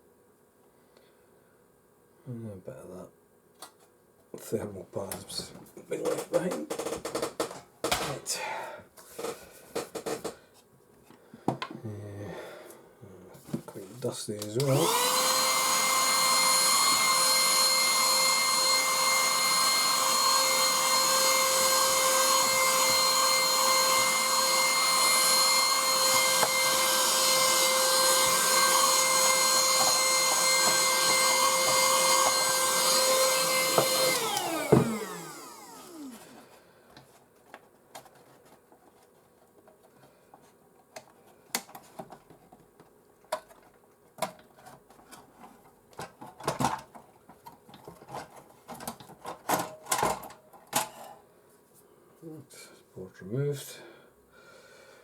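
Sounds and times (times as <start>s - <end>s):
electric motor whining: 14.6s - 36.3s.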